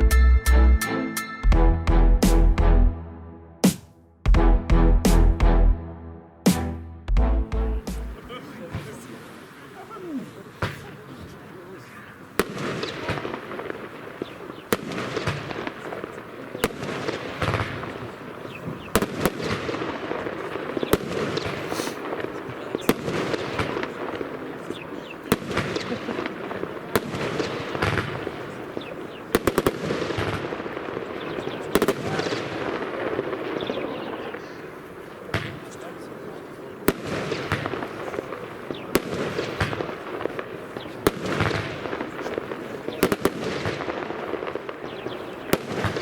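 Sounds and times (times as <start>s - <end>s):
firework bangs: 3.6s - 4.0s, 12.3s - 46.0s
firework cake crackling: 8.0s - 46.0s.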